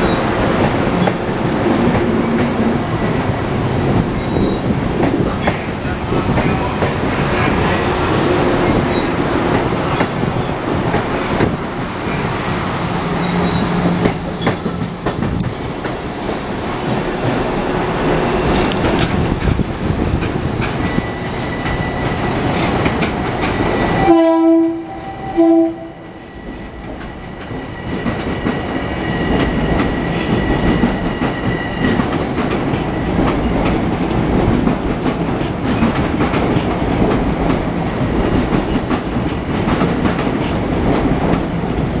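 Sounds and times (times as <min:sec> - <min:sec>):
train horn blasts: 0:24.0 - 0:26.2.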